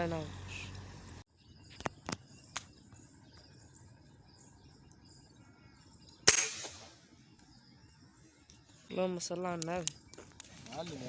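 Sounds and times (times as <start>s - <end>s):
insects or birds chirping: 0.0s - 11.0s
sharp clicks: 9.4s - 10.8s.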